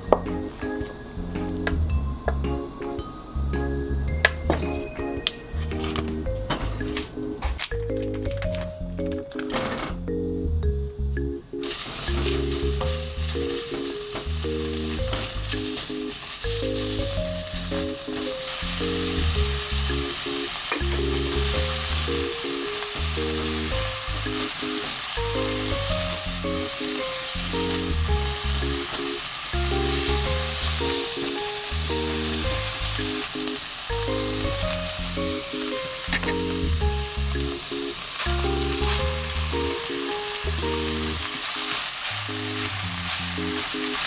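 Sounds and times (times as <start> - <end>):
soft background music: 0.0 - 44.0
food sizzling in a pan: 11.6 - 44.0.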